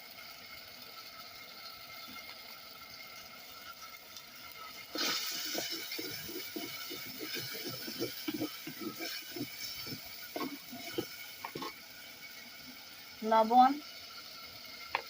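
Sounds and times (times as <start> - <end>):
light sizzle: 0.0 - 15.0
spatula scraping a pan: 4.9 - 12.1.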